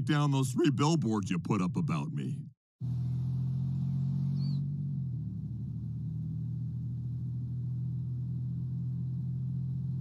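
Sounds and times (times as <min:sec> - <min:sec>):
car engine cruising: 0:02.8 - 0:10.0.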